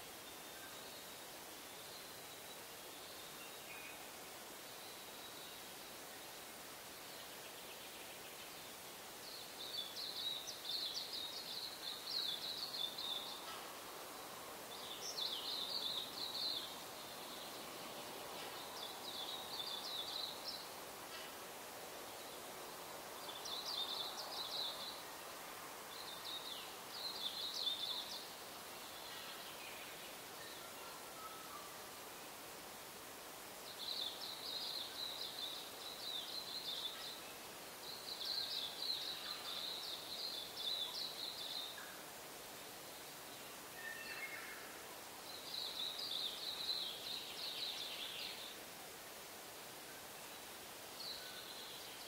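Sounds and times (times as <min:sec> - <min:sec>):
faint background hiss: 0:00.0 - 0:52.0
bird singing: 0:43.8 - 0:44.7.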